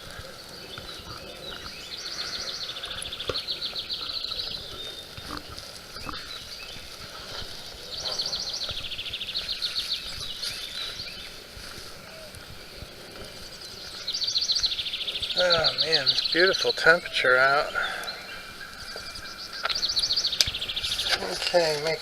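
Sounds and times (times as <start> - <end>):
songbird high rapid trill: 13.5 - 22.0.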